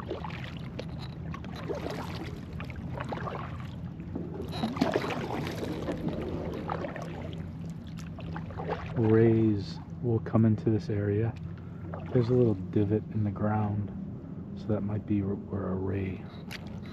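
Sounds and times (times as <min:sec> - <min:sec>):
paddle splashing in water: 0:00.0 - 0:09.2, 0:11.8 - 0:12.4
steady low hum: 0:00.0 - 0:16.9.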